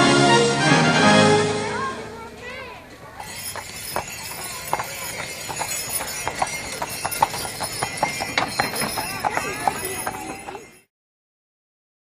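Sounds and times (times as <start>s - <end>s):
hooves clip-clopping on pavement: 2.4s - 10.9s
small harness chimes tinkling: 2.5s - 10.9s.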